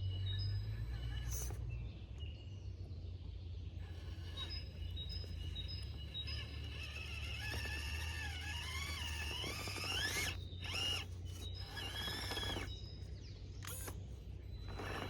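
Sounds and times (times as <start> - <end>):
toy car motor whining: 0.4 - 1.7, 3.8 - 12.8, 13.6 - 15.0.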